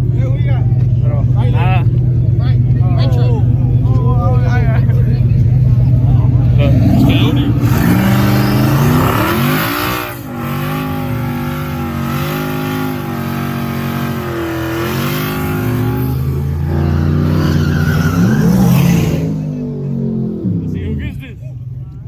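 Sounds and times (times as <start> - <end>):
truck engines revving hard: 0.0 - 22.0.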